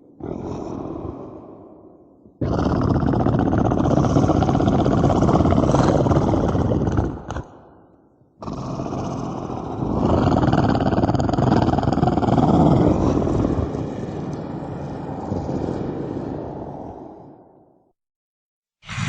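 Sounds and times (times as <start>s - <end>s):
long rumbling roar: 8.4s - 17.6s.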